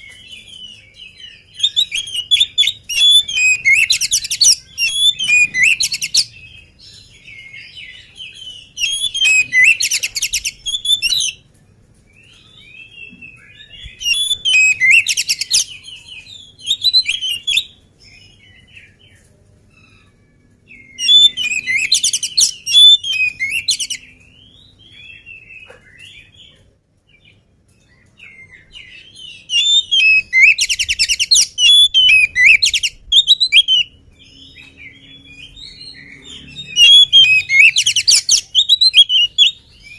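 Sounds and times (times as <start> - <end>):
soft bird chirps and whistles: 0.0 - 11.5, 12.2 - 26.6, 27.8 - 39.9.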